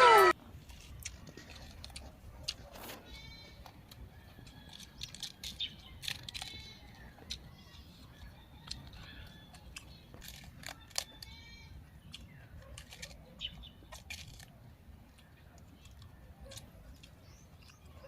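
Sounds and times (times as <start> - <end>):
birds chirping: 0.0 - 1.2
person chewing raw vegetables: 0.0 - 18.0.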